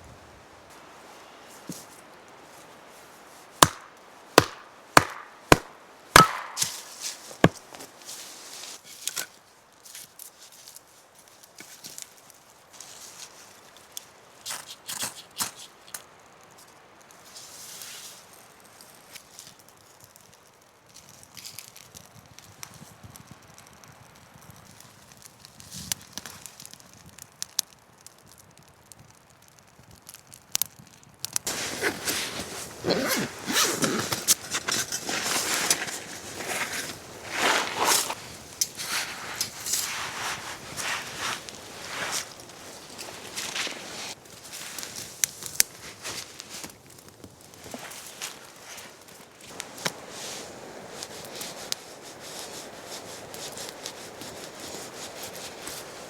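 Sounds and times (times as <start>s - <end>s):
blade chopping wood: 3.6s - 7.9s
wood fire crackling and popping: 3.6s - 17.4s, 18.2s - 56.0s.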